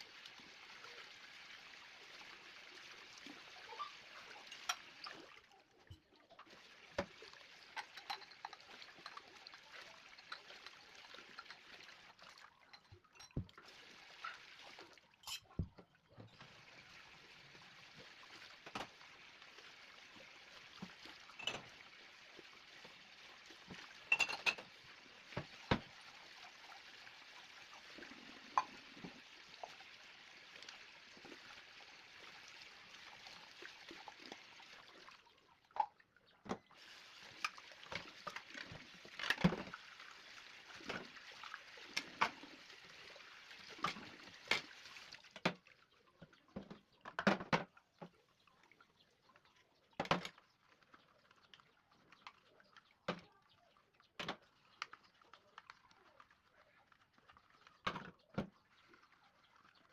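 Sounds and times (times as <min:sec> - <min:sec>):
dishes clinking: 0:04.5 - 0:04.9, 0:07.8 - 0:09.2, 0:12.7 - 0:13.5, 0:15.2 - 0:15.7, 0:21.4 - 0:21.7, 0:24.1 - 0:24.7.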